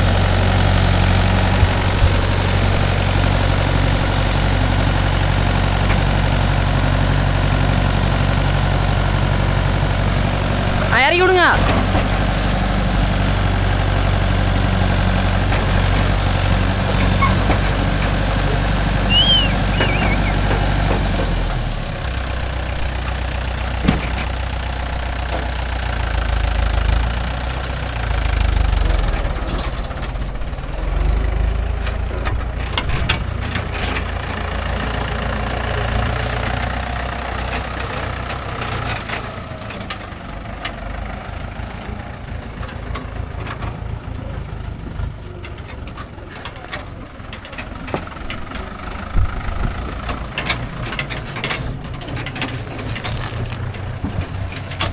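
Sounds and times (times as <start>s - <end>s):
diesel engine humming: 0.0s - 54.9s
knocks and clanks: 23.7s - 24.5s.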